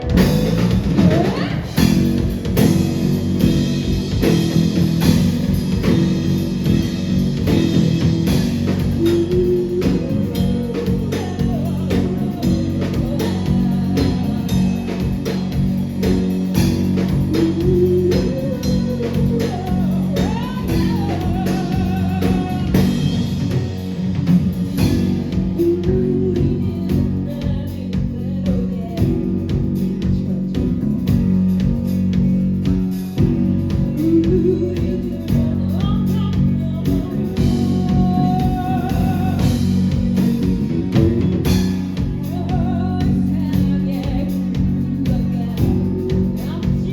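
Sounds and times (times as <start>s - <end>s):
live band playing loud: 0.0s - 46.9s.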